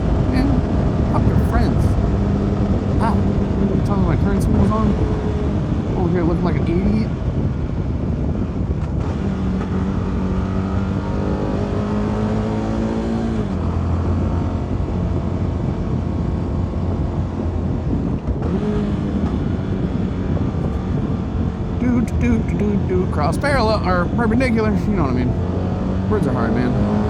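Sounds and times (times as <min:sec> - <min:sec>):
motorcycle engine shifting gears: 0:06.6 - 0:27.0.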